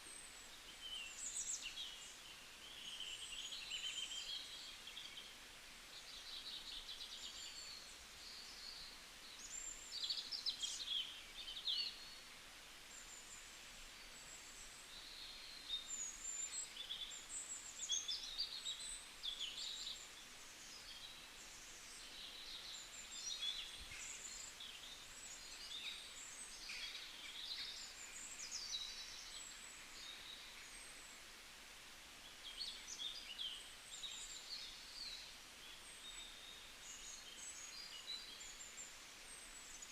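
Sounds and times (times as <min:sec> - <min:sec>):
faint steady hiss: 0:00.0 - 0:39.9
birds chirping and twittering: 0:12.9 - 0:31.3, 0:32.2 - 0:39.9.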